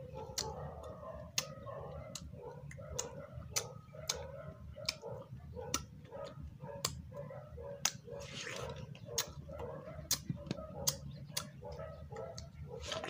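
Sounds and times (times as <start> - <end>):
wet mouth smacks chewing: 0.2 - 5.0, 5.7 - 6.0, 7.8 - 9.4, 10.0 - 11.6, 12.4 - 13.0.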